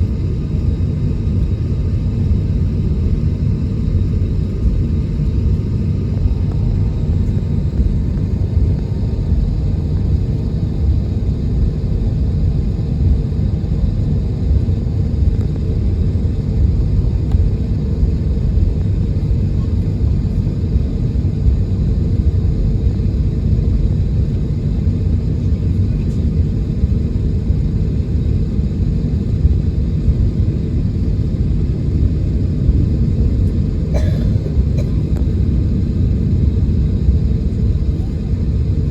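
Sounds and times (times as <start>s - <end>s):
airliner cabin low rumble: 0.0s - 38.9s.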